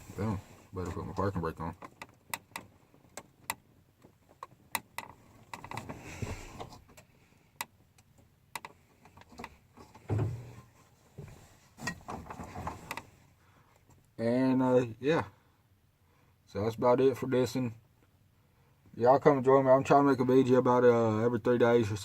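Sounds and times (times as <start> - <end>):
soft rustling: 0.0 - 1.4, 5.2 - 6.9, 9.7 - 14.0
clicks and knocks in truck cab: 8.6 - 13.0.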